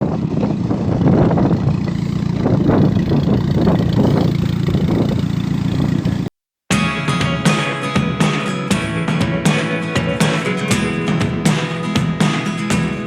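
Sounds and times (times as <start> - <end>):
vehicle engine rumbling: 0.0 - 6.3.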